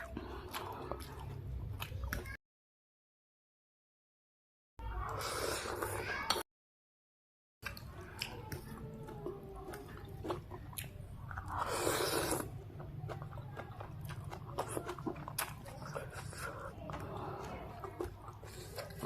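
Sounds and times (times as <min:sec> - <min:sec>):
person chewing noodle soup: 0:00.0 - 0:02.4, 0:05.0 - 0:06.4, 0:07.6 - 0:19.0.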